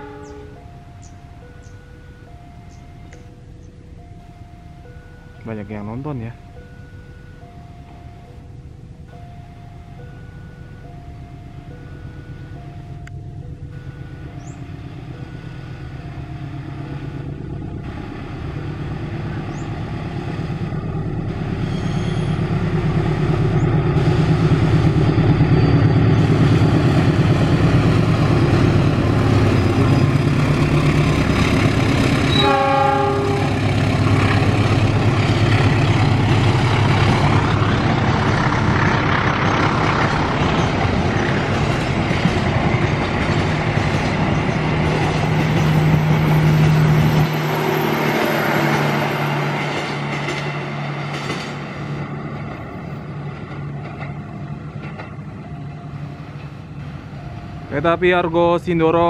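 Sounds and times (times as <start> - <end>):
train horn blast: 0.0 - 0.7, 32.1 - 34.0
locomotive engine droning: 0.0 - 59.0
train wheels rumbling and clattering: 14.4 - 59.0.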